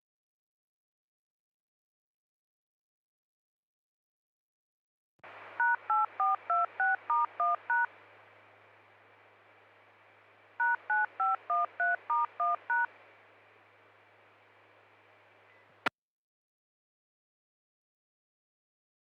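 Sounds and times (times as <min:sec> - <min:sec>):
touch-tone beeps: 0:05.6 - 0:07.9, 0:10.6 - 0:12.9.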